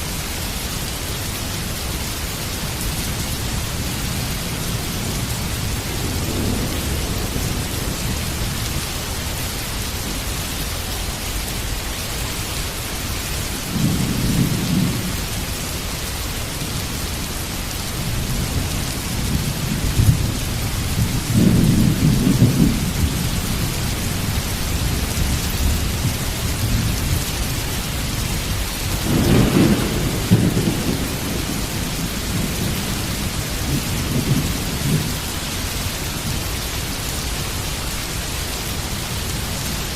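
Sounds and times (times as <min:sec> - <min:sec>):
heavy rain falling: 0:00.0 - 0:39.9
thunder rumbling: 0:04.1 - 0:09.4, 0:18.0 - 0:35.5.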